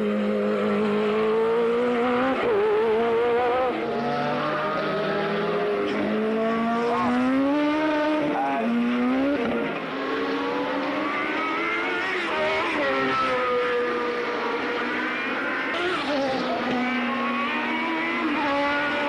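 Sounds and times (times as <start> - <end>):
racing car engines revving: 0.0 - 19.0.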